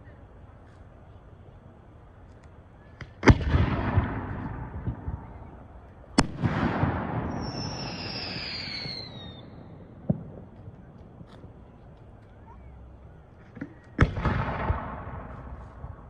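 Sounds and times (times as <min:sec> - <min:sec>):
firework crackle and rumble: 0:00.0 - 0:16.0
whistle falling in pitch: 0:07.3 - 0:09.6.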